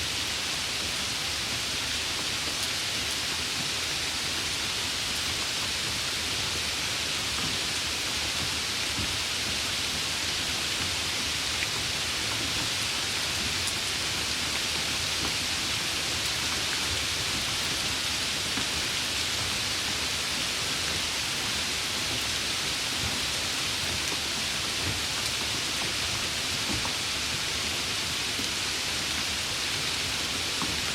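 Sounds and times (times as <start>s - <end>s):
steady rain: 0.0s - 30.9s.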